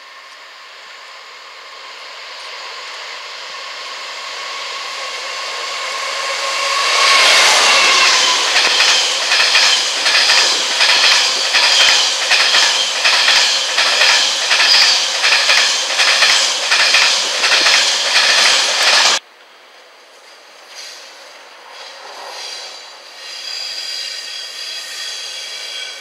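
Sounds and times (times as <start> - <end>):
train wheels clattering over rail joints: 6.8 - 19.2.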